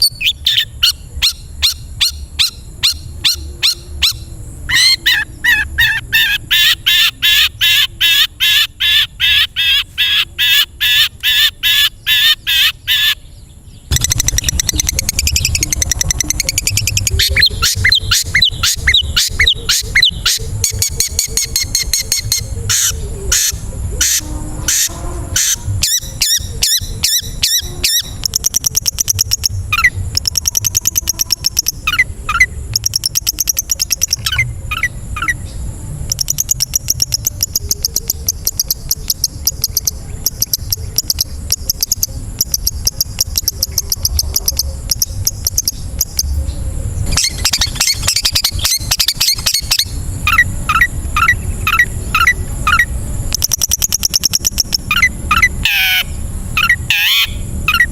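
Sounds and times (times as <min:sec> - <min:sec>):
shrike singing trills: 0:00.0 - 0:57.9.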